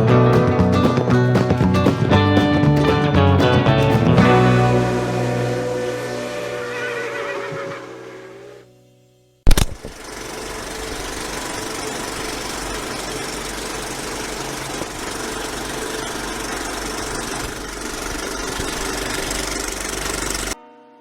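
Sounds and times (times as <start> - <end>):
motorcycle engine running: 9.5 - 20.6.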